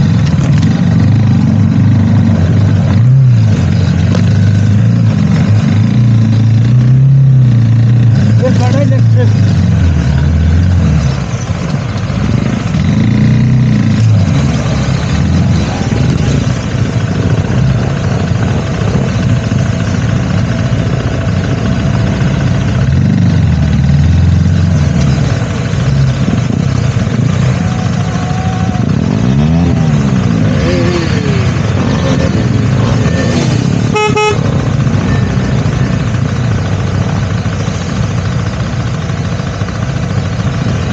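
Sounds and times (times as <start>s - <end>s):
motorcycle engine running: 0.0s - 40.9s
short horn toot: 33.1s - 34.6s.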